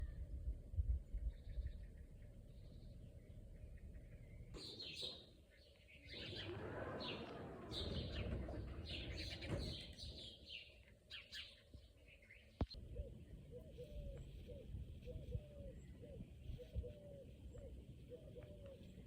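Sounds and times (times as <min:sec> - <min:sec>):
low rumble: 0:00.0 - 0:04.6
small birds chirping: 0:01.0 - 0:19.0.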